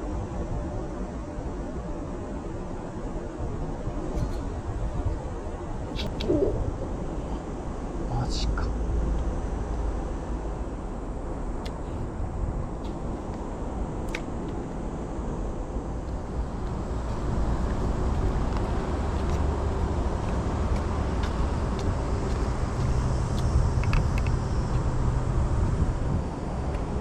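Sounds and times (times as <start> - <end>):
low outdoor rumble: 0.0 - 27.0
faint ticks: 20.2 - 24.9.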